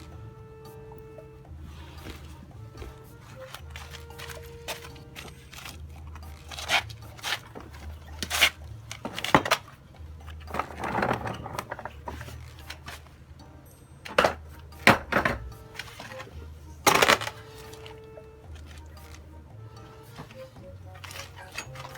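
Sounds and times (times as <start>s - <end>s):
low steady hum: 0.0s - 21.9s
sharp knocks and clatters: 14.0s - 16.1s.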